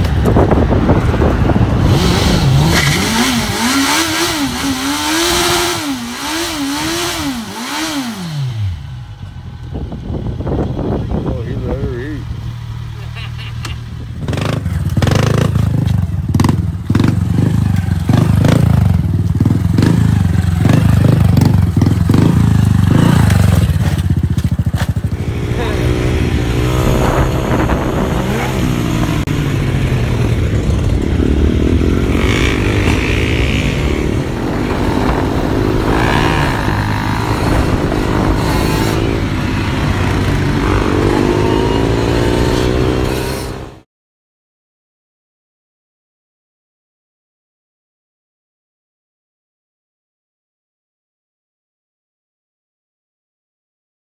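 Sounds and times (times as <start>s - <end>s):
sportbike engine revving: 0.5s - 9.1s, 14.2s - 24.3s, 24.9s - 43.8s
dirt bike engine revving: 1.7s - 8.9s, 14.2s - 24.2s, 24.8s - 43.8s.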